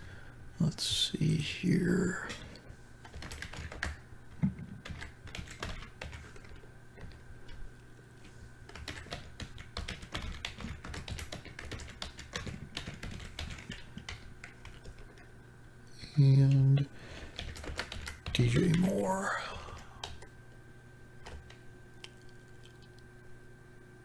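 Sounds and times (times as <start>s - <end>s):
typing on computer keyboard: 2.3s - 7.7s, 8.7s - 15.3s, 17.2s - 19.0s, 21.2s - 23.0s.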